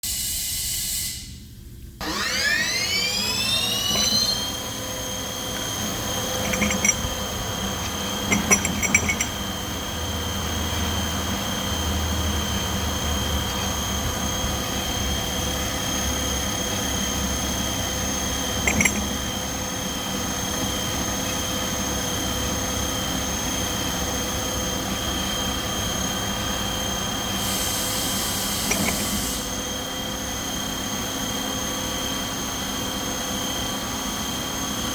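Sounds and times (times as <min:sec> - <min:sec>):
lathe spindle whine: 0:02.0 - 0:34.9
short clanks: 0:06.3 - 0:07.2, 0:18.6 - 0:19.3.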